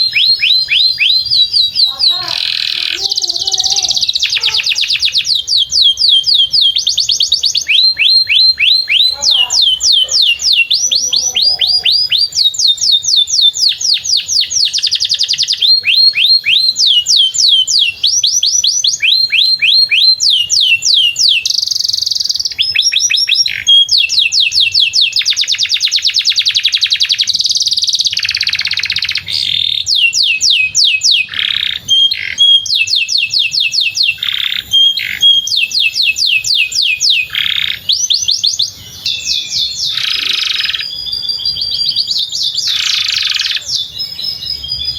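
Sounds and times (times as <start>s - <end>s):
canary singing trills: 0.0s - 44.9s.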